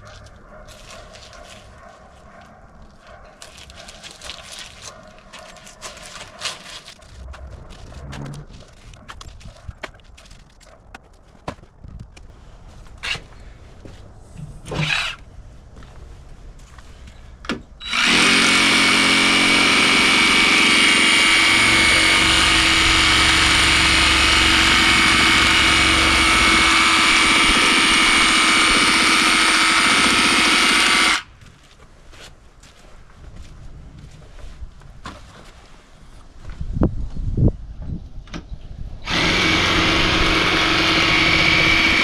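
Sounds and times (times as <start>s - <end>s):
handheld power tool whining: 14.7s - 15.2s, 17.8s - 31.3s, 39.0s - 42.0s.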